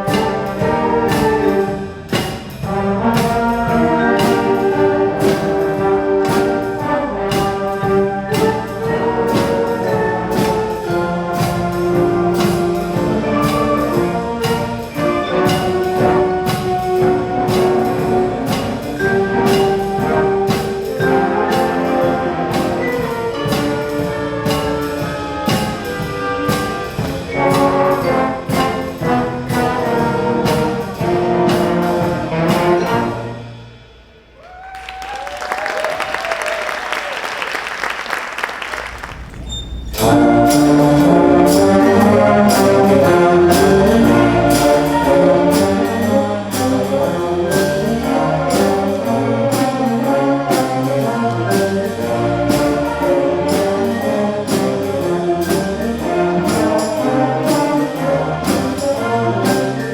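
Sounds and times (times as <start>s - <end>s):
jazz band with brass playing: 0.0s - 34.4s, 35.1s - 59.9s
audience applause: 34.4s - 39.7s.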